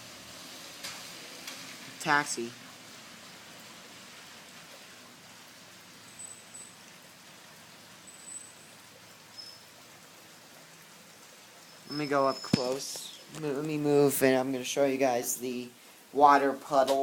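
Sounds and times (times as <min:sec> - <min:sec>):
heavy rain falling: 0:00.0 - 0:17.0
faint high-pitched chirps: 0:09.3 - 0:09.7.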